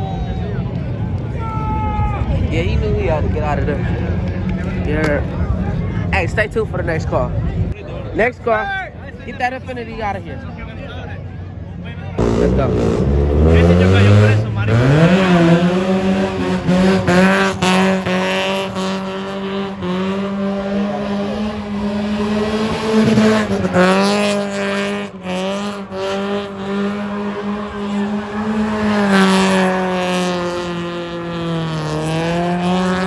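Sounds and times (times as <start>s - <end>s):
car engine revving high: 12.2s - 33.0s.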